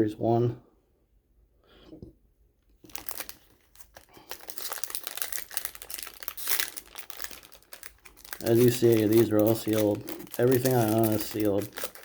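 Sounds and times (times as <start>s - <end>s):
plastic wrapper crinkling: 2.8s - 12.0s.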